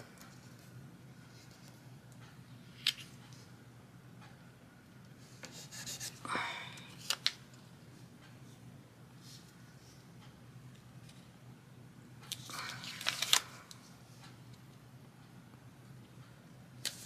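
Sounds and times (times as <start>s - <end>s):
faint steady hum: 0.0s - 17.0s
paper rustling: 12.3s - 13.9s.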